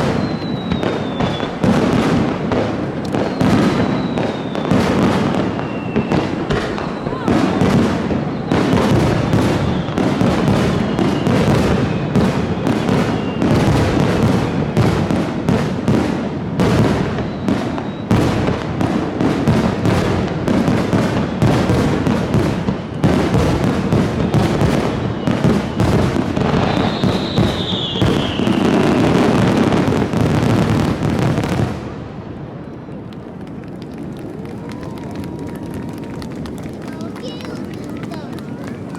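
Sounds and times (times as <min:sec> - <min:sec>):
falling whistle: 0:00.0 - 0:01.6, 0:03.1 - 0:12.3, 0:12.9 - 0:13.6, 0:17.2 - 0:18.3, 0:26.6 - 0:28.8
fireworks shells bursting: 0:00.0 - 0:14.5
fireworks crackling: 0:00.0 - 0:38.9.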